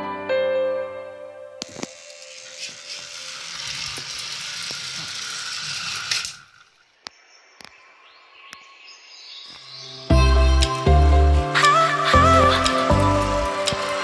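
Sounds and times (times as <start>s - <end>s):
small mechanism rattling and whirring: 1.6s - 7.0s, 11.6s - 14.0s.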